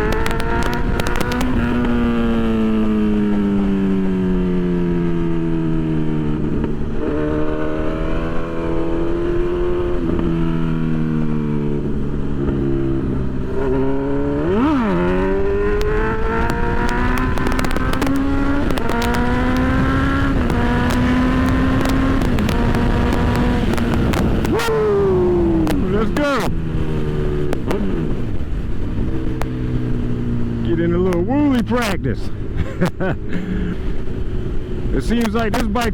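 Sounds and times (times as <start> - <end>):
motorcycle engine revving: 0.0 - 35.9
wind and road noise: 0.0 - 35.9.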